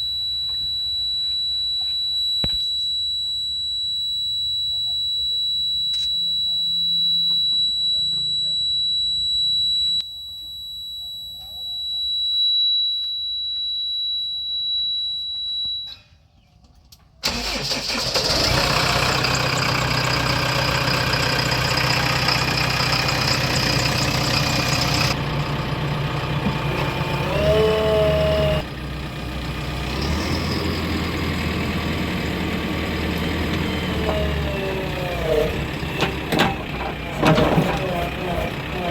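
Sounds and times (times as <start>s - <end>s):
high electronic beep tone: 0.0s - 16.2s
heavy diesel engine running: 17.3s - 38.9s.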